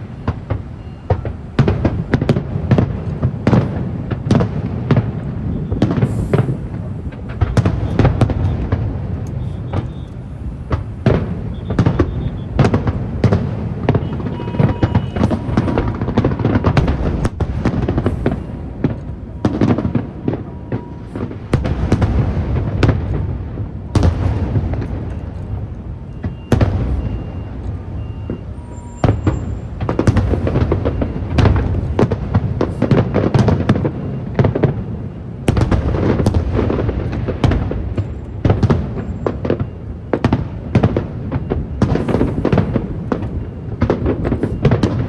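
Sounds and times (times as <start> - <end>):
low booming of explosions: 0.0 - 45.0
firework shells bursting: 0.2 - 34.8.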